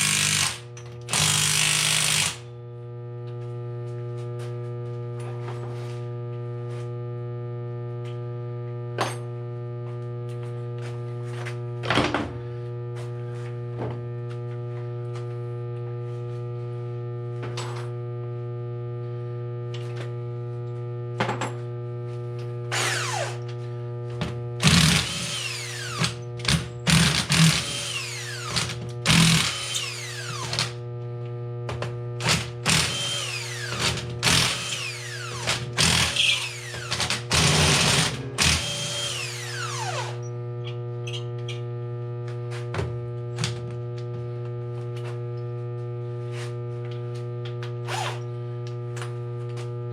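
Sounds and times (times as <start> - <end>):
power driver bursts: 0.0 - 2.4, 24.6 - 30.8
steady electrical hum: 0.0 - 49.9.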